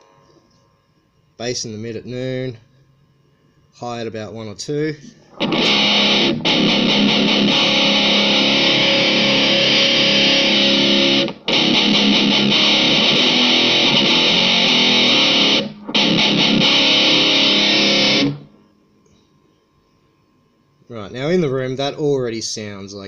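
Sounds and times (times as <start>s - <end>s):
distorted electric guitar chords: 5.2s - 18.6s.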